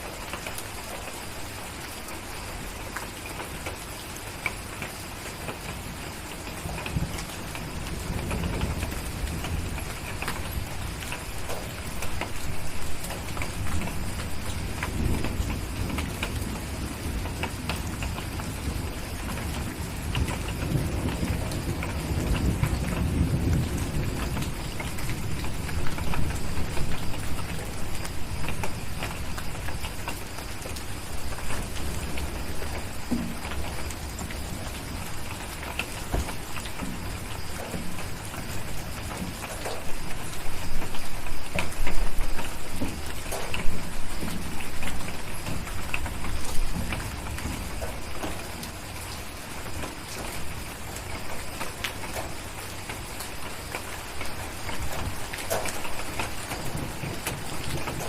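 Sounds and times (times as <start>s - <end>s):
steady rain hissing: 0.0s - 58.0s
low rolling thunder: 5.7s - 58.0s.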